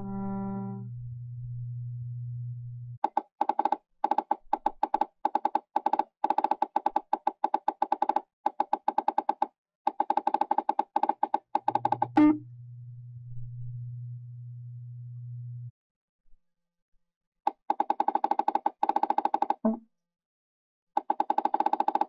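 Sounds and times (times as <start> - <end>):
falling pitch electronic sound: 0.0 - 0.9
steady low tone: 0.0 - 3.0, 12.1 - 15.7.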